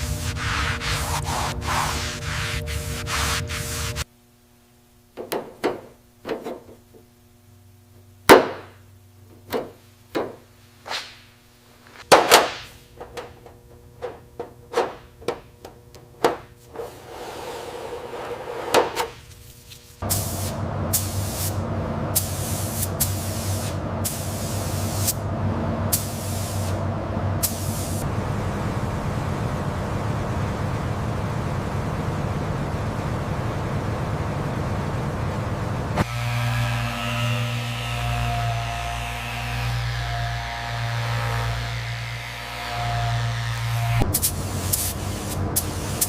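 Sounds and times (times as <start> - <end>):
tool knocks and taps: 5.2 - 6.8, 9.4 - 10.4
compressed-air spray hissing: 19.9 - 21.6, 22.2 - 25.2, 25.9 - 26.8, 27.4 - 28.0, 44.1 - 46.0.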